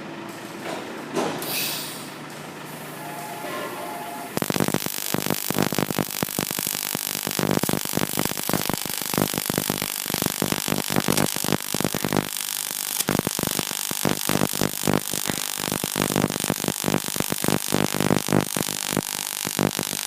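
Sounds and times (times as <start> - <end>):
arc welding crackle: 4.2 - 20.0.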